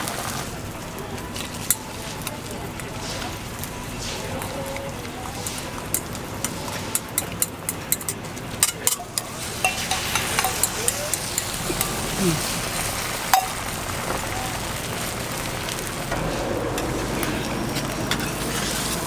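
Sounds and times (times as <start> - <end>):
food sizzling on a griddle: 0.0 - 19.0
utensils clicking on hot plate: 5.1 - 12.5.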